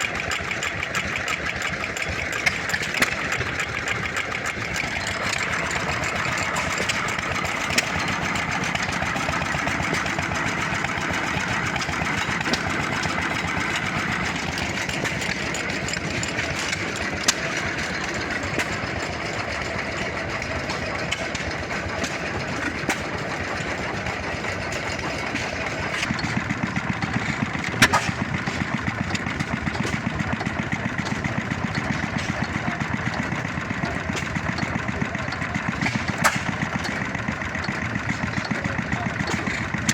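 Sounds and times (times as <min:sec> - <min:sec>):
old engines chugging: 0:00.0 - 0:39.9
rapid exhaust pops: 0:25.2 - 0:32.9.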